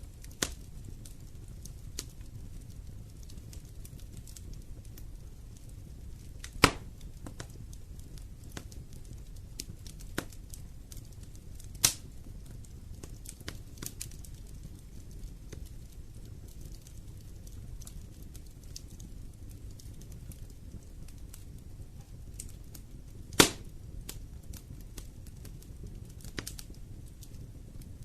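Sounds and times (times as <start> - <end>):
loud pops from fire: 0.0 - 28.0
wood fire crackling: 0.0 - 28.0.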